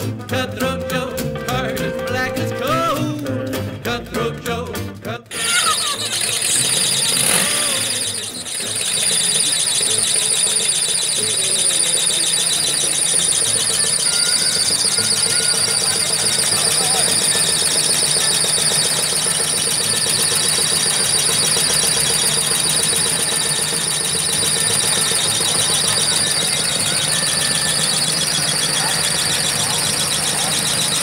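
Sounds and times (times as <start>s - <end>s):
car engine idling: 5.3s - 31.0s
supercharger whine: 5.3s - 31.0s.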